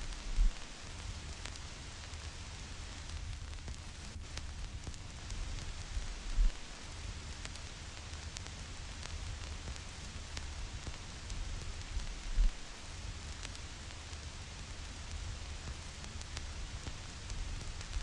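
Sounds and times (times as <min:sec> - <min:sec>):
low rumble: 0:00.0 - 0:00.6
low thumps: 0:00.0 - 0:00.6
vinyl record crackle and hiss: 0:00.0 - 0:18.0.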